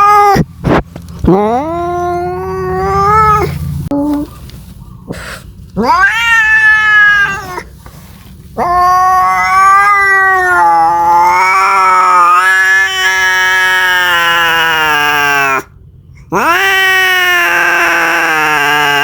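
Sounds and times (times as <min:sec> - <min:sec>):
cat yowling: 0:00.0 - 0:00.5, 0:01.3 - 0:03.6, 0:05.8 - 0:07.7, 0:08.6 - 0:15.7, 0:16.3 - 0:19.0.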